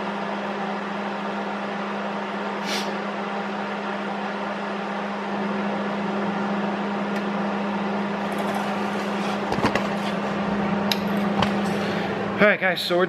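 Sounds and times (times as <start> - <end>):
electrical hum: 0.0 - 13.0
hiss: 2.6 - 3.0.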